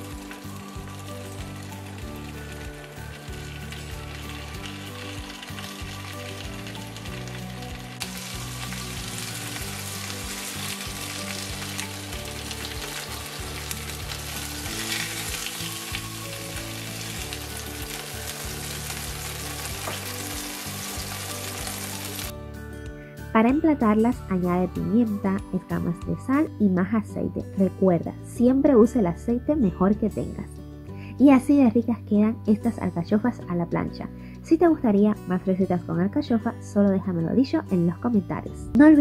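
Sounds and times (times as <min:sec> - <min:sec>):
food sizzling in oil: 0:00.0 - 0:22.3.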